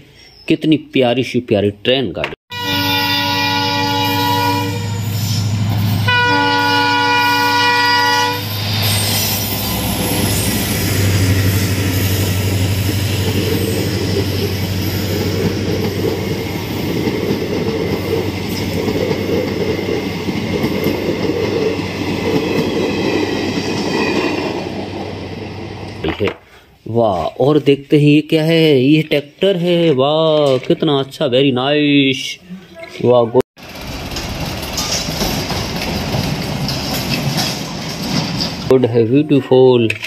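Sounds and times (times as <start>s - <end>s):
locomotive horn: 2.5s - 5.2s, 6.0s - 8.5s
train engine hum: 2.6s - 26.0s, 33.6s - 38.7s
wheels clacking on track: 8.6s - 26.4s, 33.6s - 38.7s.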